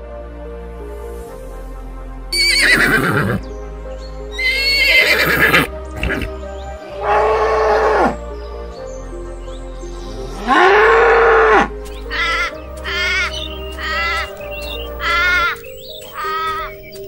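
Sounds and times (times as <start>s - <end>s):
background music: 0.0s - 17.0s
horse neighing: 2.4s - 3.4s, 4.4s - 6.3s, 10.4s - 16.8s.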